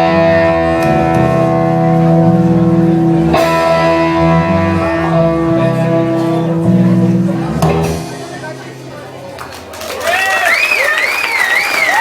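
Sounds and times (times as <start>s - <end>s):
rock band guitar chords ringing: 0.0s - 9.3s.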